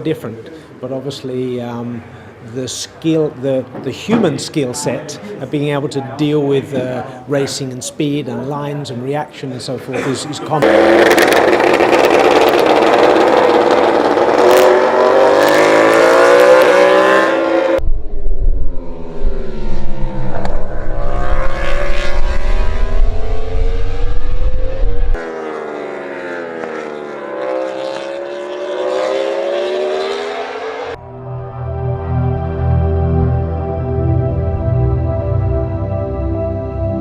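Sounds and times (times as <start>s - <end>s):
racing engine revving: 10.6s - 17.8s, 19.0s - 31.0s.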